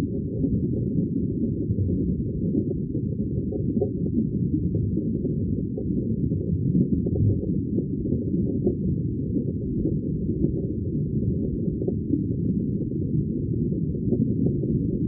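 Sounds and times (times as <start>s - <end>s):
aquarium air bubbles in water: 0.0s - 15.0s.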